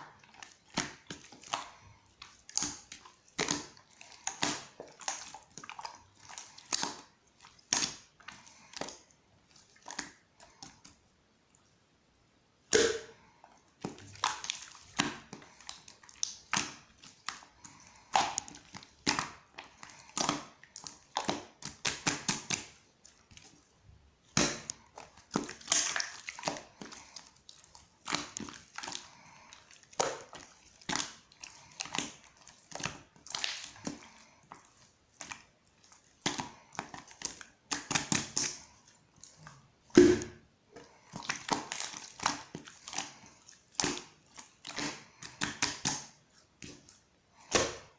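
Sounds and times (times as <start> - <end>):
slime squished by hand: 12.6 - 23.6, 24.2 - 47.9.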